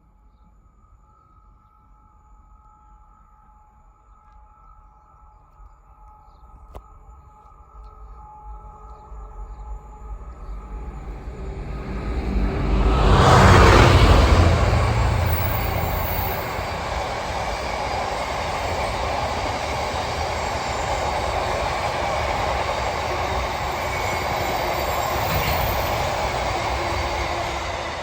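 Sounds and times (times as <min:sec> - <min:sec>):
freight train wheels rumbling on rail: 0:10.1 - 0:28.0
faint wheel squeal: 0:23.2 - 0:28.0.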